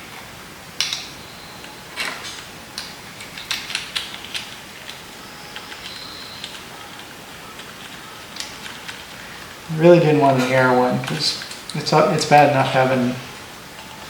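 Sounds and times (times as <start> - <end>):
clicks and clatter of plastic parts: 2.0 - 5.0.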